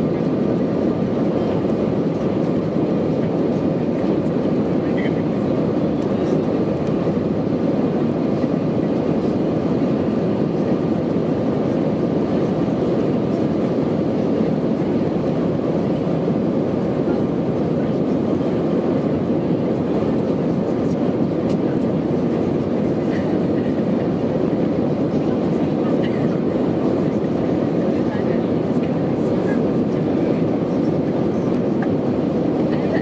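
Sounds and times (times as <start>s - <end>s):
jet engine and airflow noise: 0.0s - 33.0s.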